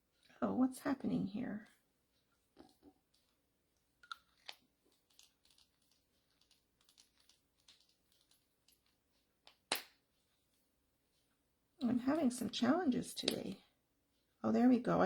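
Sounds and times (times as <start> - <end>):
craft tools clicking and tapping: 4.0 - 9.9.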